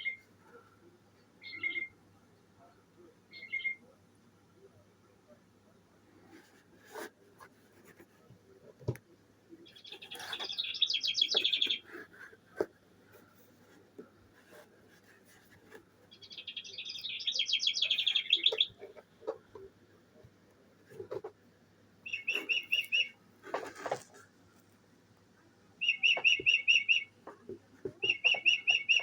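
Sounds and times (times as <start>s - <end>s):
recorded bird song trill: 0.0s - 0.4s, 1.2s - 4.9s, 9.5s - 12.0s, 16.0s - 19.7s, 22.0s - 23.2s, 25.8s - 27.3s, 27.9s - 29.0s.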